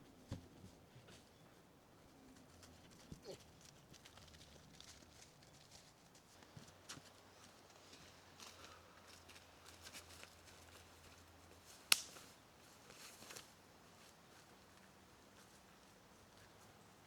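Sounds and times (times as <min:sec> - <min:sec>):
rustling handling sounds: 0:02.3 - 0:16.8
faint footsteps: 0:02.4 - 0:11.6.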